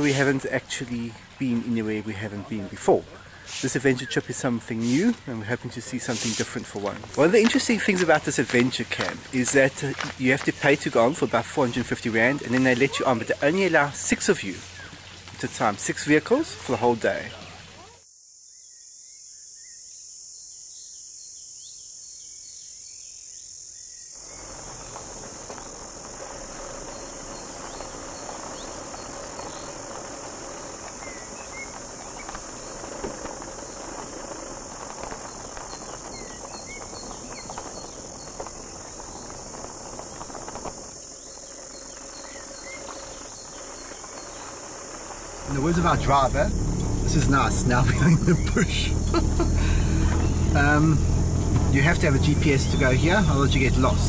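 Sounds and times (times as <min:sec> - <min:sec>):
high-pitched insect drone: 0:24.2 - 0:54.0
vehicle driving on sandy track: 0:24.2 - 0:54.0.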